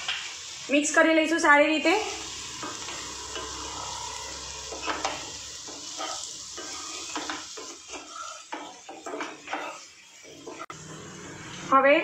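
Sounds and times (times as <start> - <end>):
potatoes sizzling in oil: 0.0 - 11.8
wooden spatula scraping pan: 2.6 - 10.7.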